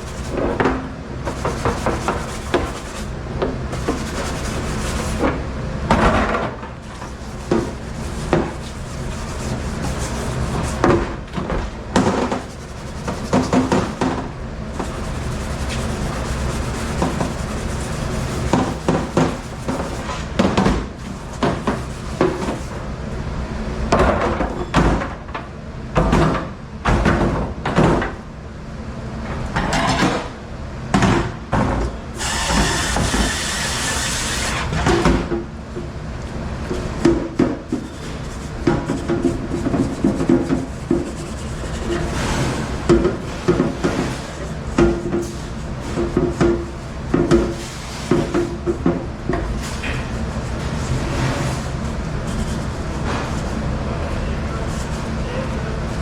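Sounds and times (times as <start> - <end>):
steady low hum: 0.0 - 23.9, 35.5 - 56.0
knocks and bangs of objects: 20.4 - 22.4
hiss: 32.2 - 34.5.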